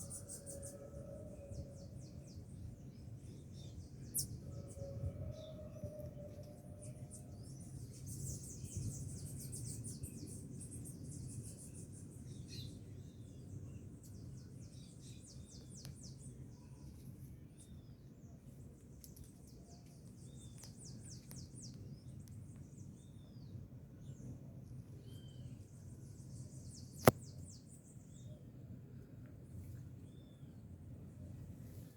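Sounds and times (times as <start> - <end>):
sharp click: 27.0 - 27.2.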